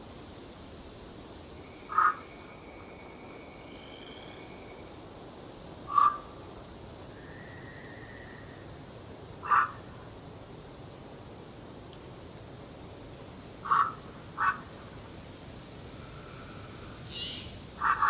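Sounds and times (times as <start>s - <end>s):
short loud bird calls: 1.9s - 2.5s, 16.2s - 18.0s
thin whistled bird notes: 16.1s - 17.6s.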